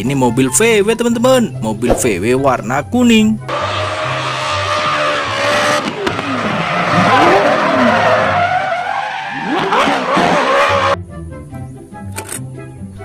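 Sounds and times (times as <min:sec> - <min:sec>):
car engine revving hard: 0:03.5 - 0:11.0.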